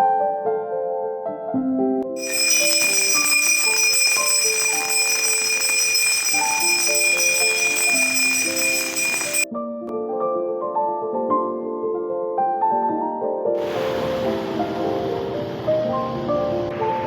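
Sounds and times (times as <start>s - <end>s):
bright bell ringing: 2.2s - 9.5s
soft piano music: 9.5s - 17.0s.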